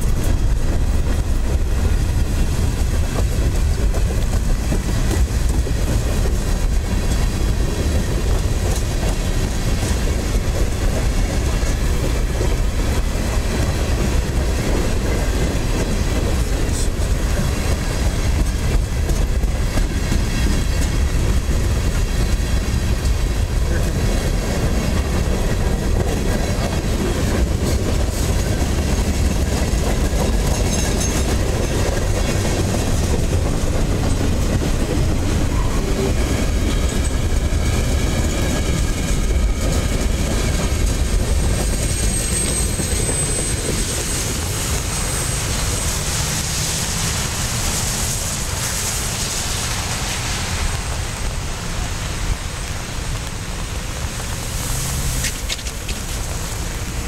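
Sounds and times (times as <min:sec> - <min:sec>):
wheels clacking over rail joints: 0:00.0 - 0:51.9
train wheels rumbling on rail: 0:00.0 - 0:57.0
high hiss: 0:41.8 - 0:57.0.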